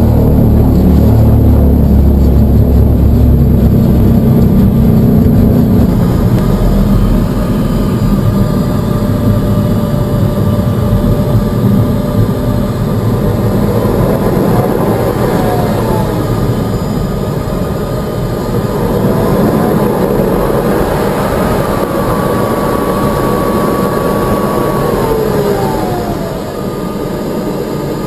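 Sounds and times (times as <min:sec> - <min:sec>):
heavy low rumble: 0:00.0 - 0:28.0
small jet engines whining: 0:00.0 - 0:28.0.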